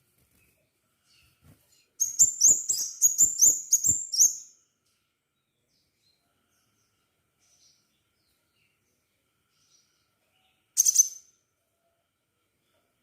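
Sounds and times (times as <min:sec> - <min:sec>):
bird singing sharp high chirps: 0:02.0 - 0:04.6, 0:10.8 - 0:11.3.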